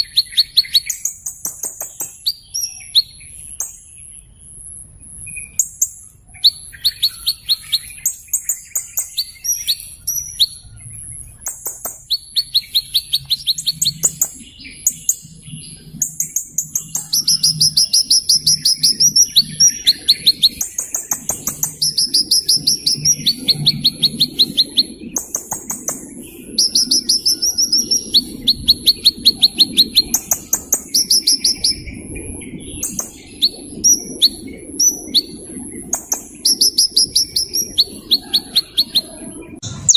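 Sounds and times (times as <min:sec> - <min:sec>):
small bird singing trills: 0:00.0 - 0:39.9.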